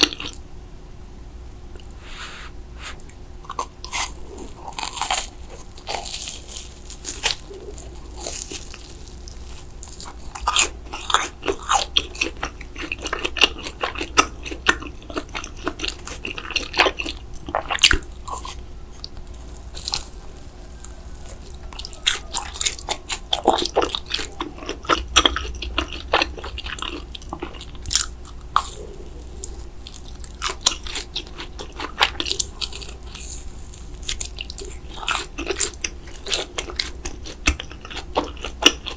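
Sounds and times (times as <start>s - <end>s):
crunchy bites and chewing: 2.8s - 38.9s.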